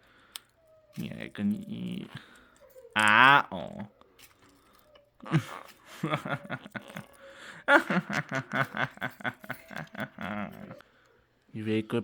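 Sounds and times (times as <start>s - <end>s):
person laughing: 5.2s - 10.8s.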